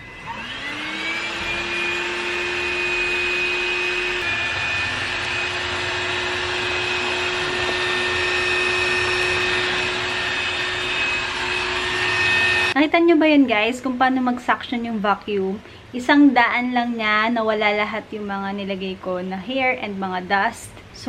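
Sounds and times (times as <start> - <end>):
vacuum cleaner running: 0.0 - 12.8.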